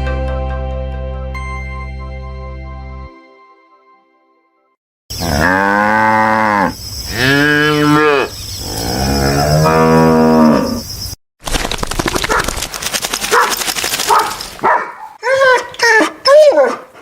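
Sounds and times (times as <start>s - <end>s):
cattle mooing: 5.2s - 10.8s
rapid rattling noise: 11.4s - 14.6s.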